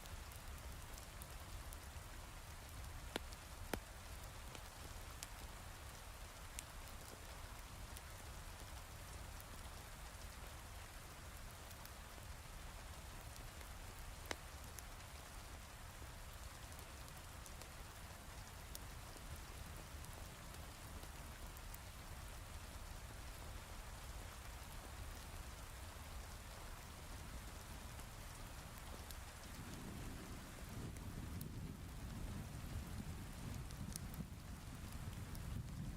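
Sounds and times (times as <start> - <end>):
sharp crackles and pops: 0.0 - 35.9
low rumble of thunder: 29.4 - 35.9.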